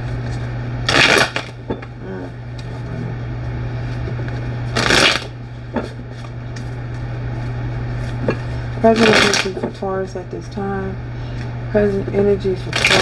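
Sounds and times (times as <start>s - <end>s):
steady low hum: 0.0s - 13.0s
cards being shuffled: 9.0s - 9.6s.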